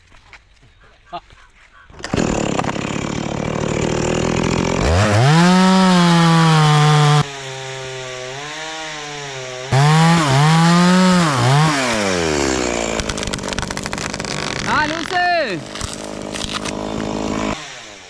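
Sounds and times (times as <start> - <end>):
chainsaw revving: 2.0 - 18.0.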